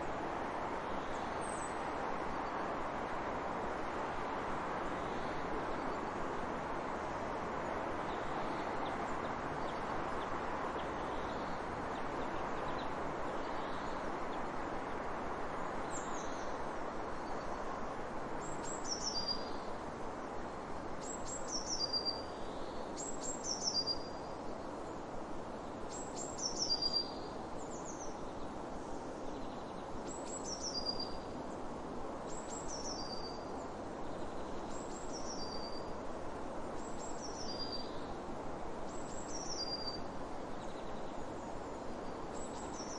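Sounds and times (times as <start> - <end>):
small bird singing: 18.4 - 19.7, 21.0 - 24.4, 25.9 - 28.5, 29.3 - 31.3, 32.3 - 36.0, 36.8 - 38.2, 38.9 - 42.9.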